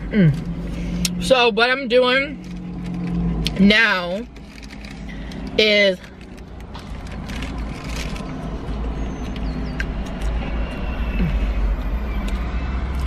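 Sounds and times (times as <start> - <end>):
car engine idling: 0.0 - 13.0
paper wrapper crinkling: 4.2 - 5.4, 6.0 - 9.0.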